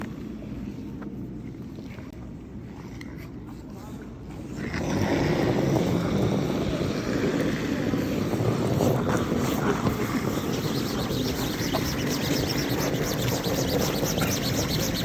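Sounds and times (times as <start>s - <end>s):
curling stone sliding on ice: 4.5s - 15.0s
broom scrubbing ice: 9.2s - 15.0s.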